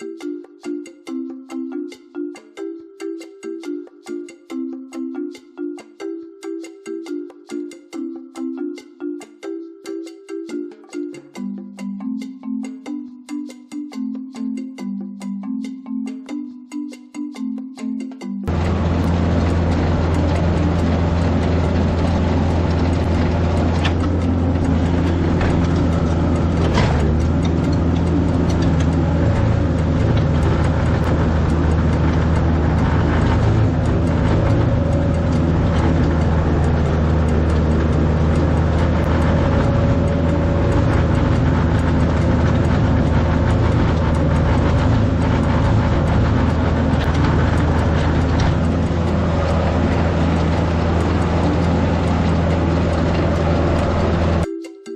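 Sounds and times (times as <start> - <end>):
tractor engine running: 18.5 - 54.5.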